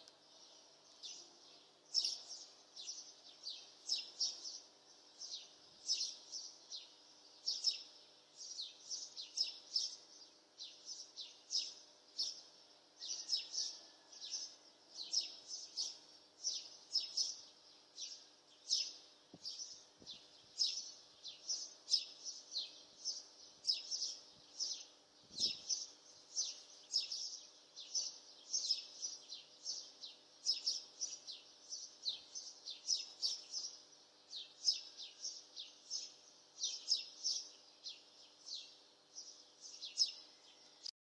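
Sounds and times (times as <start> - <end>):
faint steady hum: 0.0 - 40.9
birds chirping: 15.0 - 40.9.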